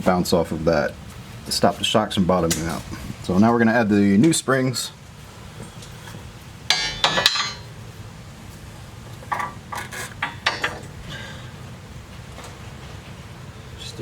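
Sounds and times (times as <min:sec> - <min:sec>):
metal spring clanking: 0:06.7 - 0:07.7, 0:09.3 - 0:10.9
metal ringing: 0:06.7 - 0:07.8.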